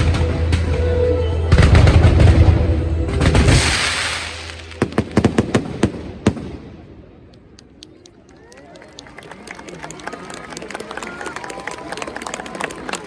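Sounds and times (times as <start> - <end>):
fireworks crackling: 3.1 - 8.2
firework sharp bangs: 3.2 - 7.3
firework hissing spray: 3.6 - 4.8.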